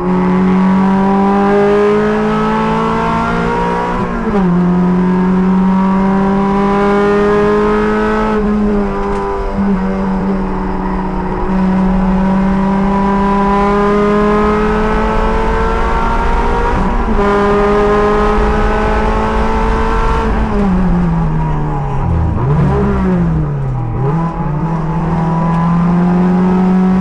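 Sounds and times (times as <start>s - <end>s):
race car engine accelerating: 0.0s - 27.0s.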